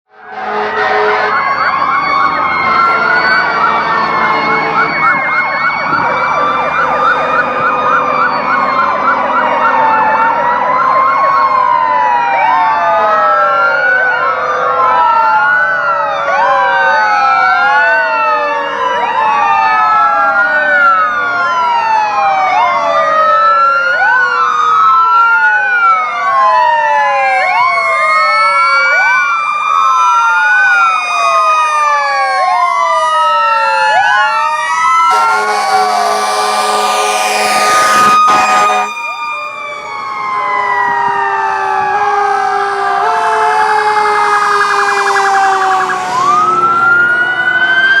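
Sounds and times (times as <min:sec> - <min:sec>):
emergency sirens wailing: 0:00.1 - 0:48.0
siren yelping: 0:00.2 - 0:48.0
engine hum: 0:44.0 - 0:47.9.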